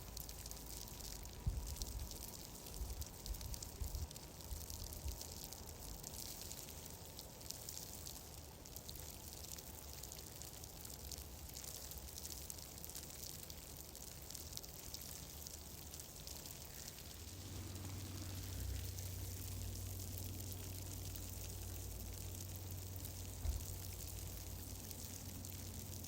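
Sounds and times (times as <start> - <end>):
crackling hiss: 0.0 - 26.0
low rumble: 17.0 - 25.4.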